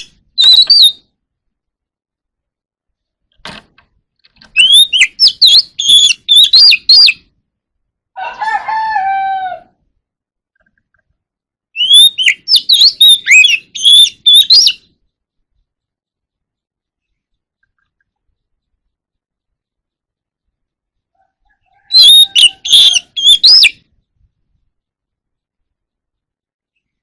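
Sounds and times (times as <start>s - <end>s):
bird singing high whistles and chirps: 0.0s - 1.0s, 4.6s - 7.2s, 11.8s - 14.9s, 21.9s - 23.9s
rooster crowing: 8.2s - 9.8s, 21.1s - 23.2s.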